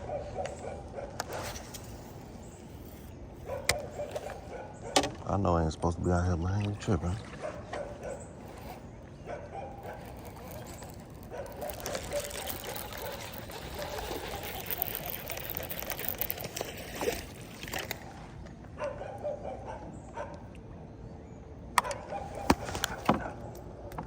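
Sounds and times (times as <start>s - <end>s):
water splashing and trickling: 9.8s - 18.4s.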